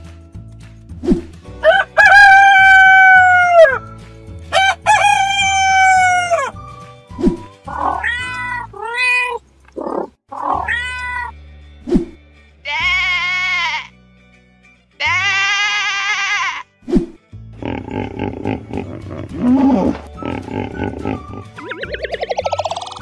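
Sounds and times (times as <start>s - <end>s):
background music: 0.0s - 8.9s, 10.3s - 23.0s
rooster crowing: 1.6s - 3.8s, 4.5s - 6.5s
cat meowing: 7.7s - 9.4s, 10.3s - 11.4s
sheep bleating: 12.6s - 14.0s, 15.0s - 16.7s.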